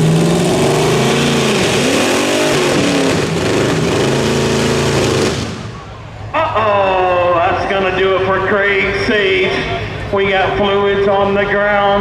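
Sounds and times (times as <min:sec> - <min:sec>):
vehicle engine at high revs: 0:00.0 - 0:05.9.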